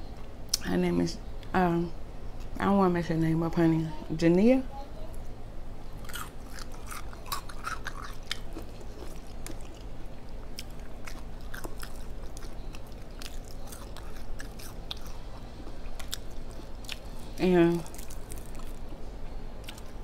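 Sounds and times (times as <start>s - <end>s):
steady low hum: 0.0s - 20.0s
person chewing crunchy food: 6.0s - 19.0s, 19.6s - 20.0s.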